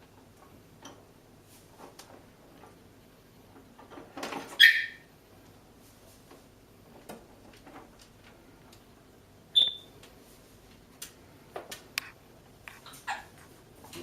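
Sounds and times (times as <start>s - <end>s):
parrot squeak: 4.6s - 5.1s, 9.6s - 9.9s.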